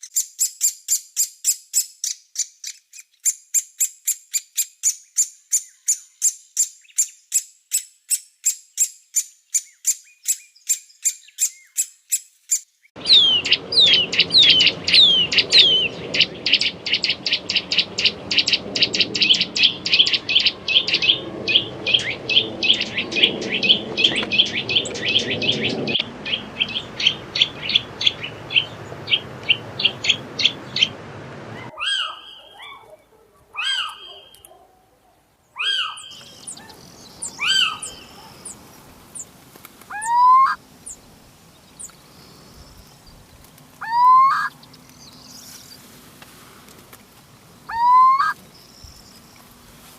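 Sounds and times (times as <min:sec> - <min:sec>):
woodpecker calls: 0:00.0 - 0:34.7, 0:35.6 - 0:39.3, 0:39.9 - 0:40.6, 0:43.8 - 0:45.5, 0:47.7 - 0:48.9
nuthatch whistles and trill: 0:13.0 - 0:29.2, 0:35.6 - 0:38.6, 0:39.9 - 0:40.6, 0:43.8 - 0:44.5, 0:47.7 - 0:48.4
owl mewing calls: 0:13.0 - 0:32.8, 0:33.6 - 0:34.6, 0:35.6 - 0:38.6, 0:39.9 - 0:40.6, 0:43.8 - 0:44.5, 0:47.7 - 0:48.4.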